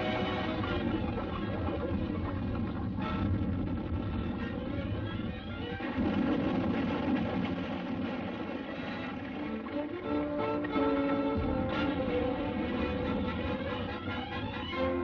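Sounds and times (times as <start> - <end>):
dramatic orchestral music: 0.0 - 1.4, 8.7 - 15.0
heavy low rumble: 0.0 - 10.0, 11.4 - 15.0.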